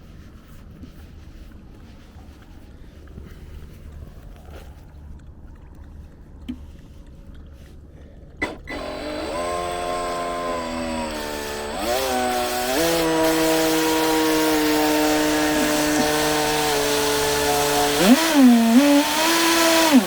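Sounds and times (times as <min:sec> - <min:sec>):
electric motor whine: 0:08.4 - 0:20.0.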